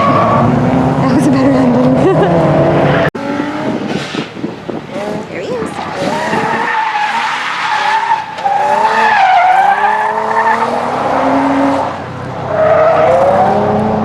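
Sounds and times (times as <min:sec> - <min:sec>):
car engine revving: 0:00.0 - 0:14.0
tyres squealing on pavement: 0:05.5 - 0:10.8.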